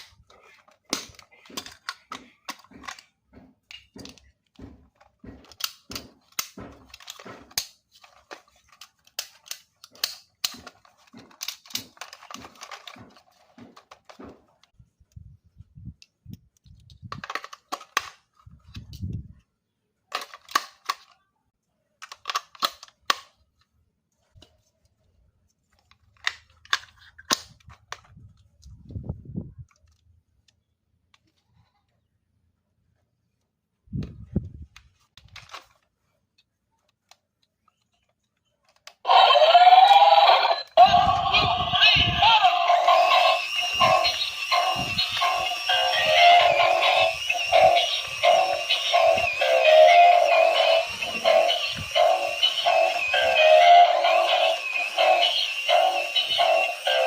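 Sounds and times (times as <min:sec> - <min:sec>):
plastic objects clicking: 0:00.0 - 0:15.2, 0:16.0 - 0:19.2, 0:20.1 - 0:21.3, 0:22.0 - 0:23.7, 0:25.7 - 0:28.8.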